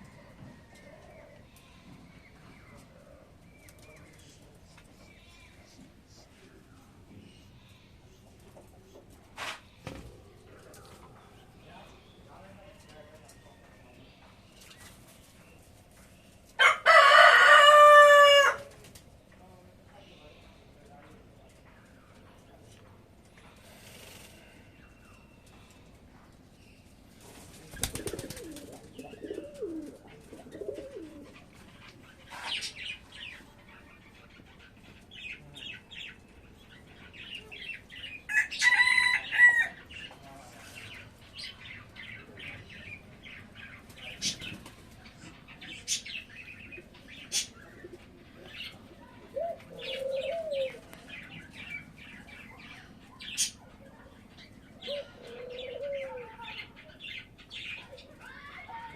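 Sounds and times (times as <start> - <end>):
wing flapping: 27.2 - 29.0
doves cooing: 27.7 - 32.0, 46.8 - 51.3, 54.8 - 56.7.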